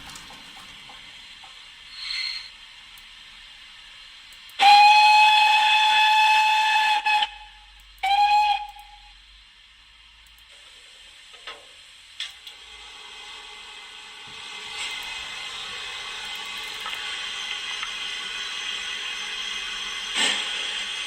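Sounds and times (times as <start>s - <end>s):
faint steam hiss: 0.0s - 21.0s
model train steam whistle: 1.9s - 2.6s, 4.5s - 9.4s.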